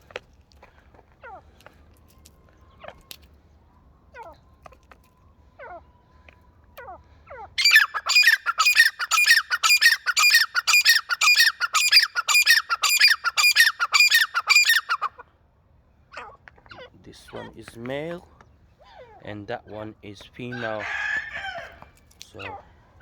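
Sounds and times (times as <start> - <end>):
faint bird chirps: 1.2 - 15.1
bird harsh repeated calls: 6.8 - 15.2, 16.1 - 19.8, 20.4 - 22.7.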